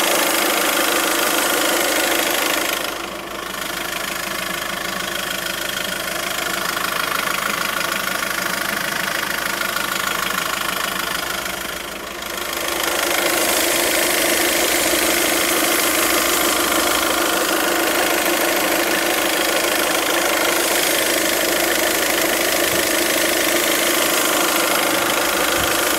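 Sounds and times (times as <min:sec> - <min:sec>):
diesel engine idling: 0:00.0 - 0:25.9
engine hiss: 0:12.6 - 0:25.9.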